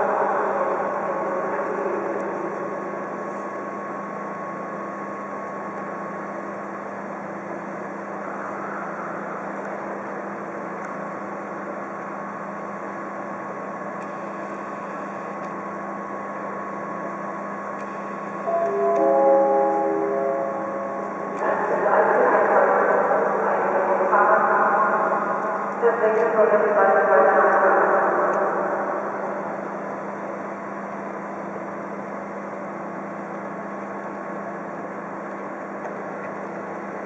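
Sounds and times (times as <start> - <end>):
railcar humming and whining: 0.0 - 37.0.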